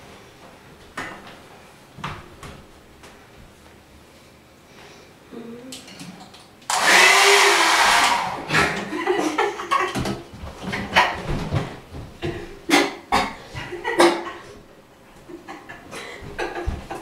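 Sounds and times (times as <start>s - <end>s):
hair dryer blowing: 6.7s - 8.9s.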